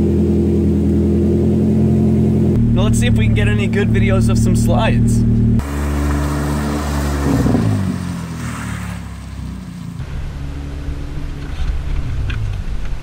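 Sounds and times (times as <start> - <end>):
car engine from inside cabin: 0.0 - 8.4
car engine revving: 0.0 - 13.0.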